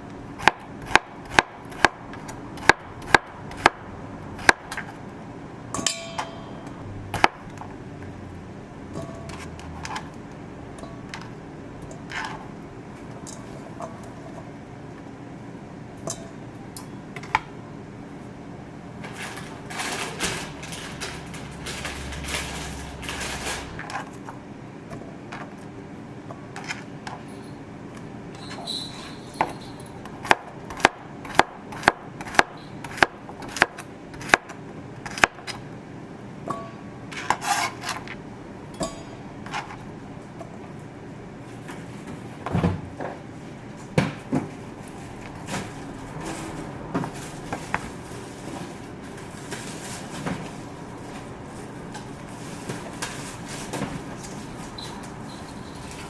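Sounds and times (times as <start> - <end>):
utensils and dishes clinking: 5.7 - 6.8, 28.3 - 30.1, 38.7 - 39.7, 45.0 - 56.0.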